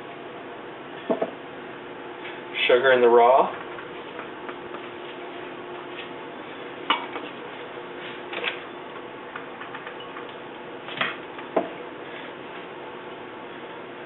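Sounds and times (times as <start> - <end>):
faint steady hum: 0.0 - 14.0
kitchenware knocks and clicks: 1.1 - 1.3.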